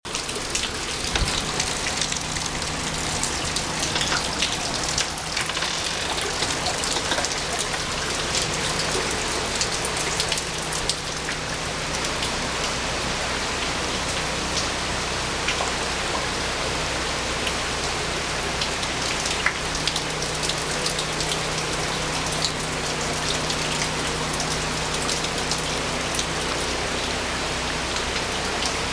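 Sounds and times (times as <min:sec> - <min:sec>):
rain falling: 0:00.0 - 0:28.9.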